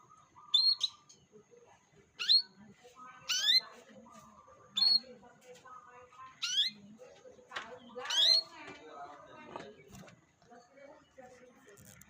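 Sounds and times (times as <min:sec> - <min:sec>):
canary chirps: 0:00.0 - 0:01.4, 0:02.0 - 0:08.7.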